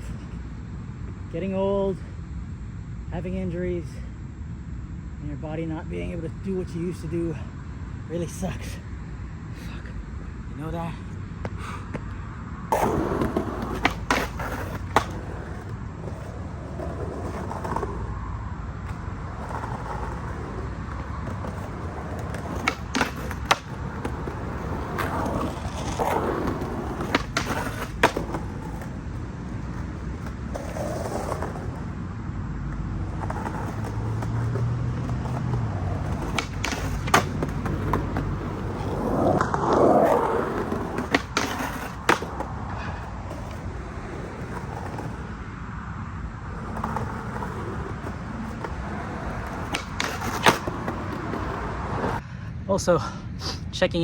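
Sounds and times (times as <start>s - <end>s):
skateboard wheels rolling: 3.8s - 52.3s
skateboard tail clacking: 11.4s - 32.0s, 32.6s - 45.5s, 46.4s - 52.2s.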